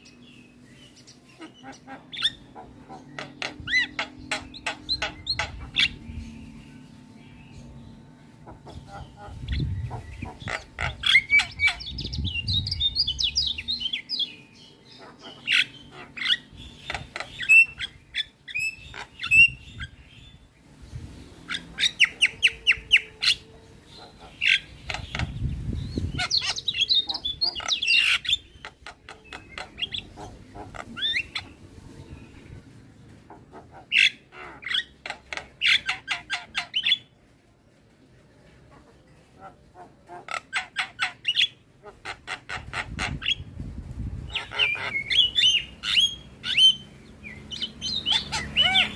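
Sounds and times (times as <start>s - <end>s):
myna calling: 8.4s - 14.0s, 26.0s - 31.6s, 44.3s - 46.9s.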